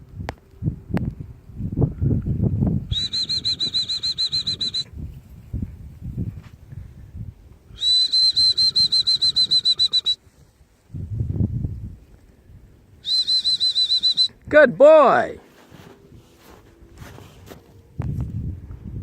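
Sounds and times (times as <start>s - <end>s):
trilled dog whistle: 2.9s - 4.9s, 7.8s - 10.2s, 13.0s - 14.4s.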